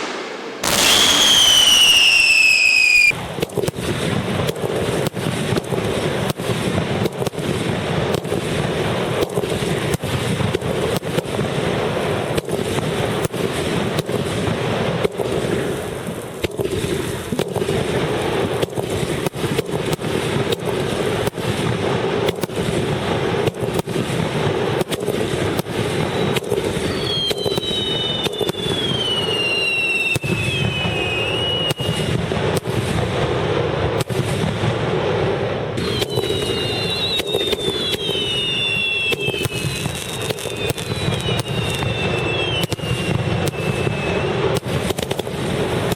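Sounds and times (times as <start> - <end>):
whistling firework shells: 0.0 - 7.3, 18.5 - 33.2, 35.6 - 45.9
fireworks bursts and crackles: 0.0 - 45.9.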